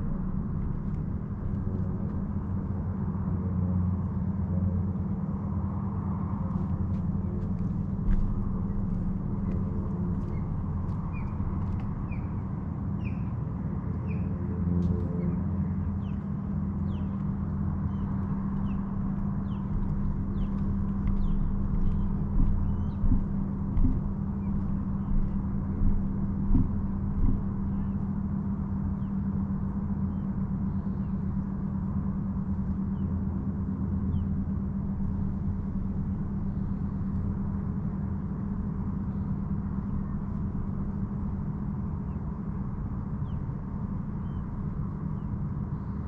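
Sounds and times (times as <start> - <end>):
boat engine droning: 0.0 - 46.0
small bird chirping: 8.0 - 12.4, 13.0 - 13.4, 14.0 - 14.4, 15.1 - 28.0
low thumps: 18.1 - 28.0.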